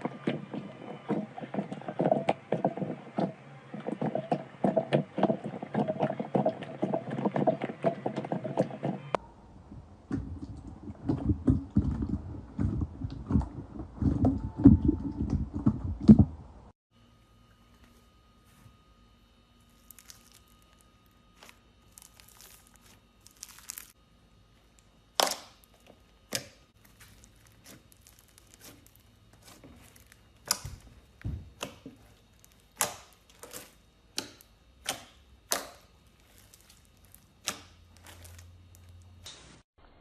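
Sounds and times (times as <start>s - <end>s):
slime crinkly rustle: 19.6s - 24.0s, 26.8s - 31.3s, 32.0s - 33.8s, 35.9s - 39.1s.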